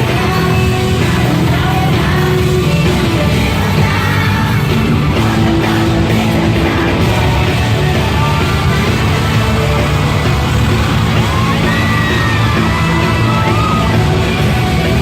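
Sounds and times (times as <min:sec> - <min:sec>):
person singing: 0:00.0 - 0:10.4
loud live rock music: 0:00.0 - 0:15.0.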